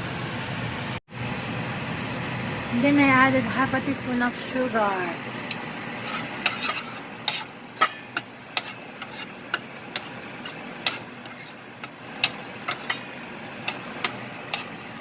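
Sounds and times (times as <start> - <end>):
simmering pan hiss: 1.2 - 15.0
utensil scraping against pan: 6.0 - 15.0.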